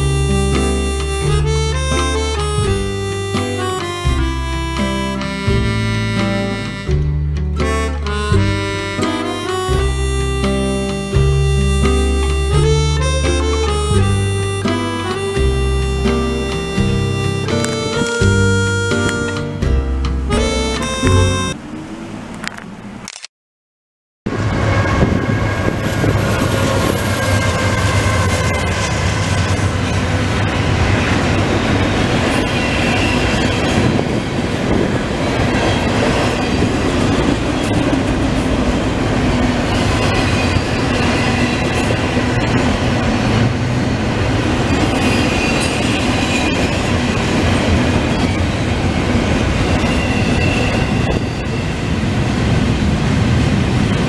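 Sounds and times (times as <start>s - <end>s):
train wheels rumbling on rail: 24.3s - 54.0s
high wheel squeal: 24.4s - 54.0s.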